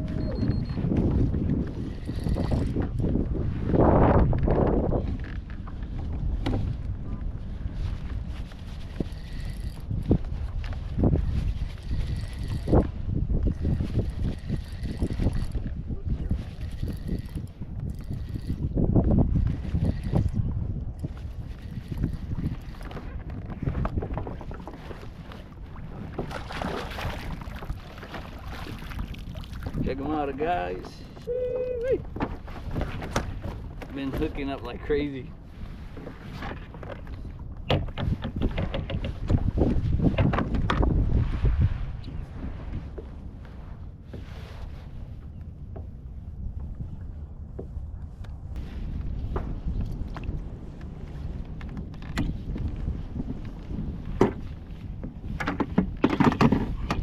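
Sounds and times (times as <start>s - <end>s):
wind buffeting microphone: 0.0s - 57.0s
water splashing: 25.5s - 29.9s
knocks on a kayak: 37.7s - 39.4s.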